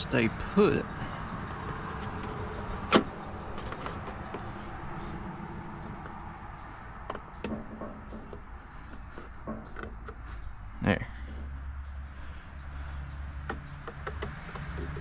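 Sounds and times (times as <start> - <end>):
bird chirping: 0.9 - 3.6, 4.2 - 15.0.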